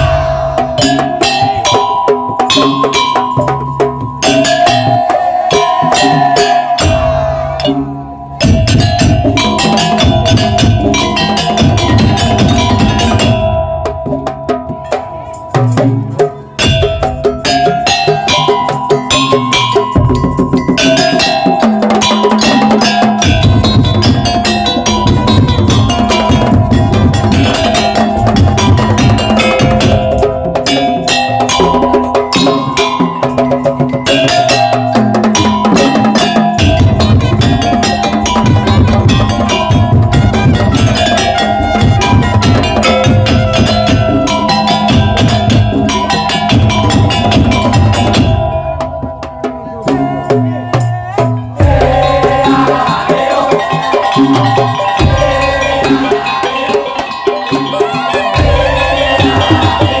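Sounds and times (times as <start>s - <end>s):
heavy low drum strokes: 0.0s - 1.6s, 36.6s - 53.3s, 58.3s - 60.0s
held melody: 0.0s - 60.0s
percussion ensemble playing: 0.0s - 60.0s.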